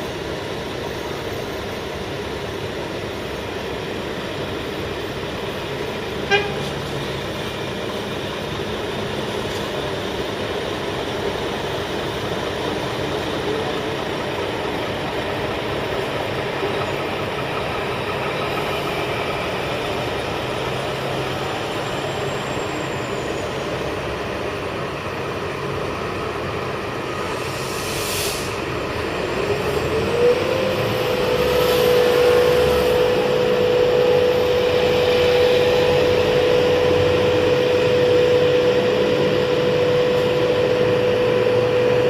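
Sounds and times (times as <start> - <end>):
paving machinery engine drone: 0.0 - 42.0
short loud horn toot: 6.2 - 6.8.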